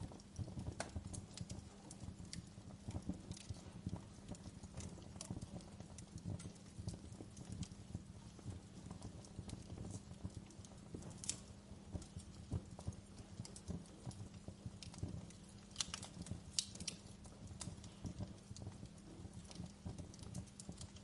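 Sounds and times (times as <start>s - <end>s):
fire crackling in a fireplace: 0.0s - 21.0s
low rumble of flame: 0.0s - 21.0s.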